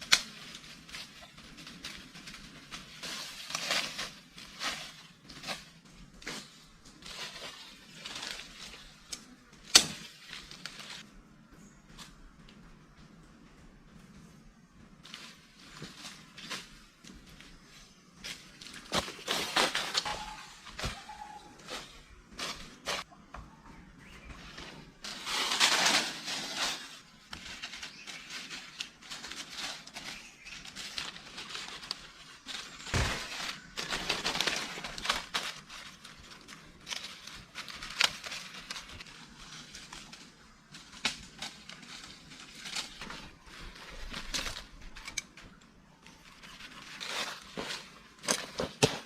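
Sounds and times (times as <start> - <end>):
rustling and crackling: 0.0 - 49.0.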